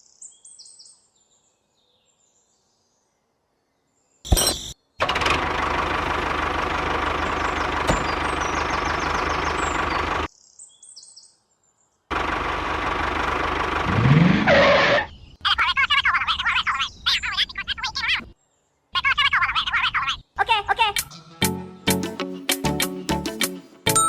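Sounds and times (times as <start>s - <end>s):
small engine running: 5.0s - 10.3s, 12.1s - 15.1s.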